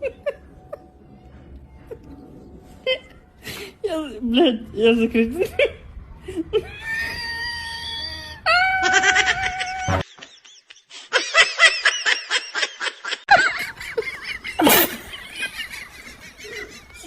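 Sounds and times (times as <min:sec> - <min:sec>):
high-pitched laughter: 0:07.9 - 0:17.0.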